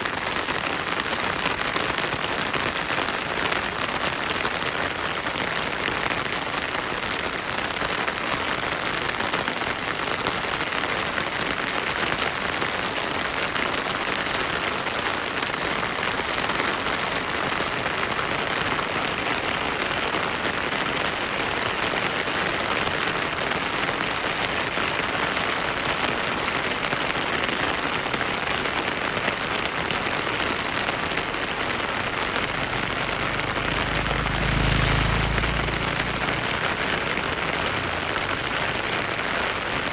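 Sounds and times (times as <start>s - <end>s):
heavy rain hissing: 8.0s - 39.9s.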